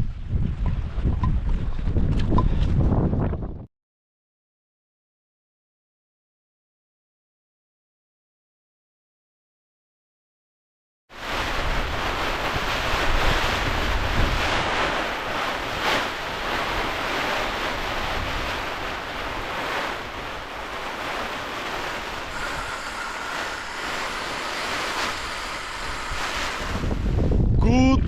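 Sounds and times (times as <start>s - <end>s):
wind buffeting microphone: 0.0s - 3.7s, 11.2s - 28.0s.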